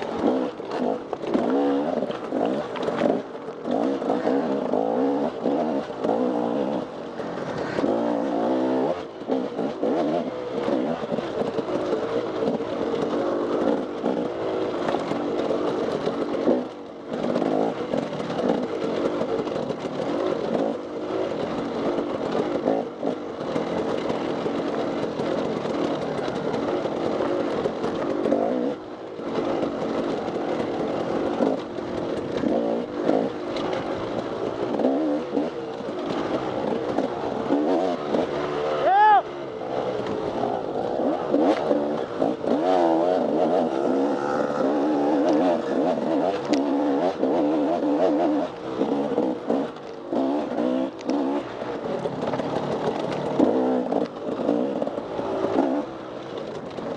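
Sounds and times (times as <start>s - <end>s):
dirt bike engine revving: 0.0s - 56.3s.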